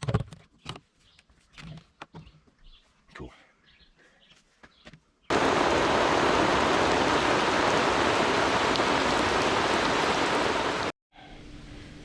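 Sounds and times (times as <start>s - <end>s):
heavy rain falling: 5.3s - 10.9s.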